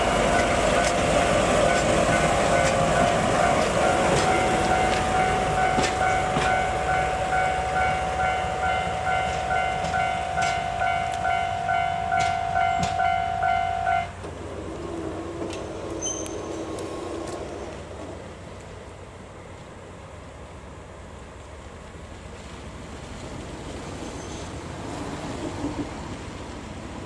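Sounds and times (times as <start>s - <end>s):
wheels clacking over rail joints: 0.0s - 19.8s
diesel locomotive passing: 0.0s - 27.0s.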